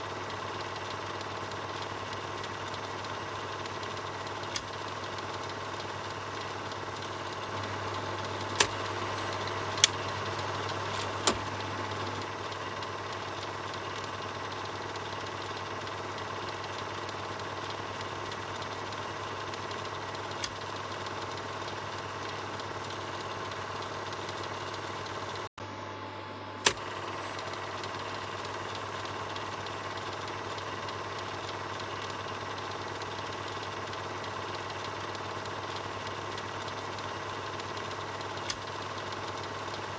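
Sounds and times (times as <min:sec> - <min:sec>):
film projector whirring: 0:00.0 - 0:39.9
sharp clicks: 0:07.6 - 0:12.4.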